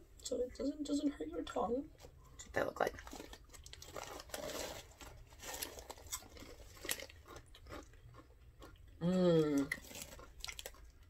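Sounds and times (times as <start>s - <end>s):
people chewing crispy chips: 2.9s - 11.0s.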